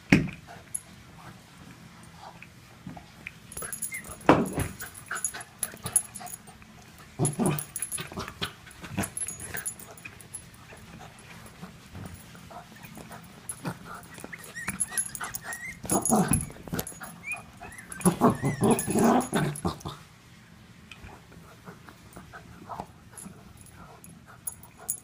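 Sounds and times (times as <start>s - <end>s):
dog vocalizing excitedly: 7.2s - 10.1s, 12.8s - 20.0s.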